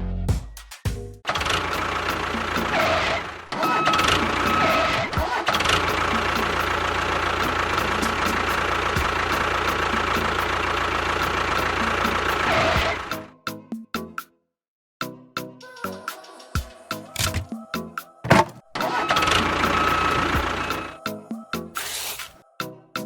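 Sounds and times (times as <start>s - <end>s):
engine starting and running: 1.3s - 13.3s, 17.1s - 17.6s, 18.2s - 21.0s.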